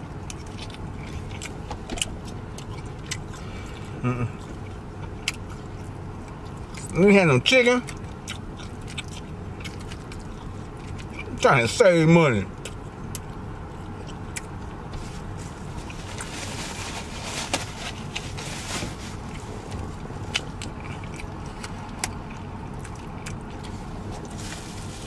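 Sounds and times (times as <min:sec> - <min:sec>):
person chewing food: 0:00.0 - 0:06.9, 0:07.8 - 0:11.4, 0:12.5 - 0:16.3, 0:19.2 - 0:24.9
low car cabin hum: 0:00.0 - 0:25.0.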